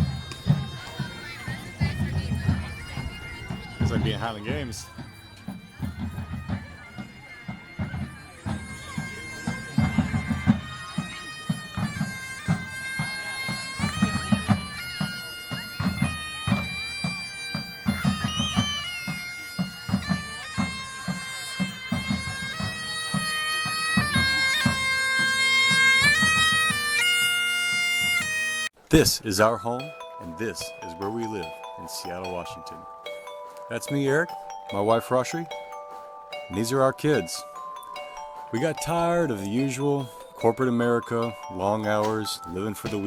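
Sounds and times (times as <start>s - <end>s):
low drum beat: 0.0s - 7.1s
bagpipes playing: 0.0s - 28.8s, 29.4s - 43.0s.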